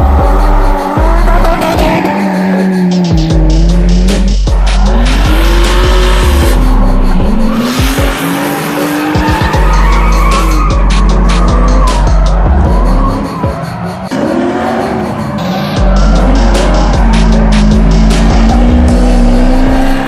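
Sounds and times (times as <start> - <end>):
car engines revving: 0.0 - 20.0
tyres squealing: 7.4 - 14.2.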